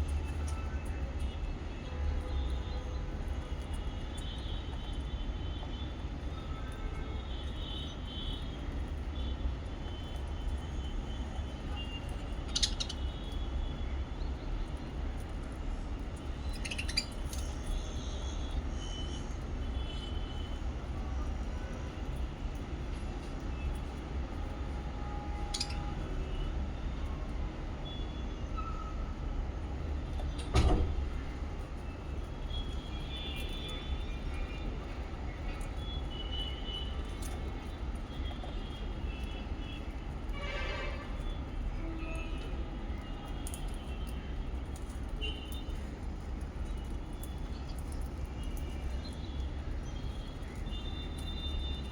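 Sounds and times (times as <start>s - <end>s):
lovebirds chirping: 16.4s - 17.8s.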